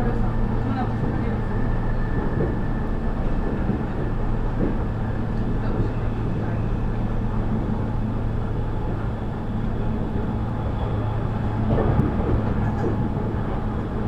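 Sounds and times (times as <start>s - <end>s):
electric train running: 0.0s - 14.0s
steady hum over rumble: 0.0s - 14.0s.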